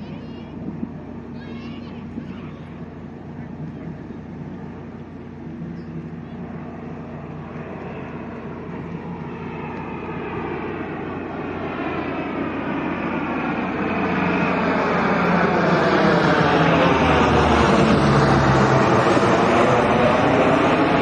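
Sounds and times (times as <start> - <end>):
turboprop aircraft approaching: 0.0 - 21.0.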